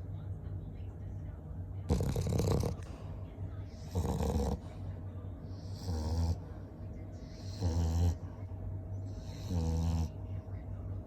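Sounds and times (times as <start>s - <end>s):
dog snoring: 1.9s - 2.9s, 3.8s - 4.7s, 5.6s - 6.5s, 7.3s - 8.2s, 9.2s - 10.1s.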